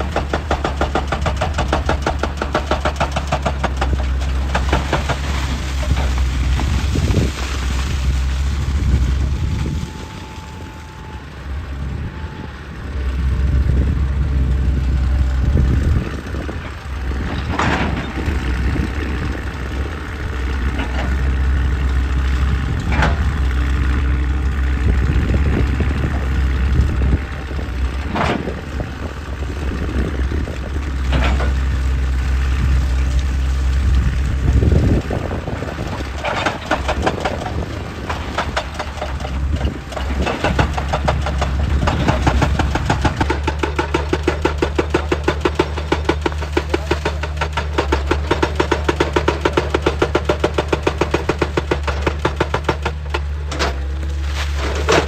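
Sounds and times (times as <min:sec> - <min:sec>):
excavator diesel engine: 0:00.0 - 0:55.0
rock knocking and rattling: 0:34.8 - 0:53.9.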